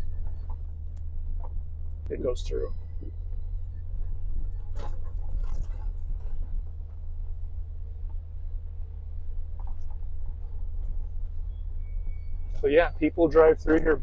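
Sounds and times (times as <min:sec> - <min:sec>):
engine rumbling from inside cabin: 0:00.0 - 0:14.0
rustling and clattering: 0:03.3 - 0:08.4, 0:09.2 - 0:11.6.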